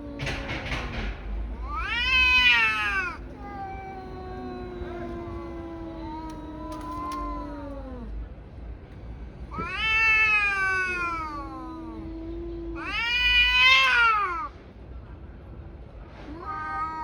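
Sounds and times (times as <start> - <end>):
low held cat wail: 0.0 - 0.9, 1.5 - 8.3, 9.5 - 14.5, 16.3 - 17.0
cats yowling: 0.0 - 8.3, 9.4 - 14.5, 16.3 - 17.0.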